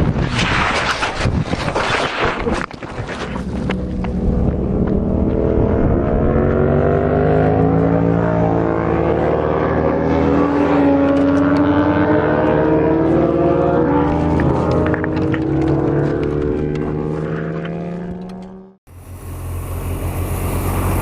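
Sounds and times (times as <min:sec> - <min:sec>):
vehicle engine accelerating: 0:03.2 - 0:21.0
rushing noise: 0:18.9 - 0:21.0.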